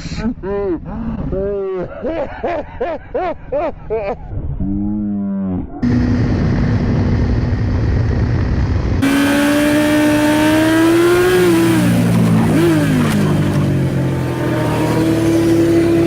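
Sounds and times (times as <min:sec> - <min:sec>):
motorcycle engine: 0:05.8 - 0:16.0
road noise: 0:05.8 - 0:16.0.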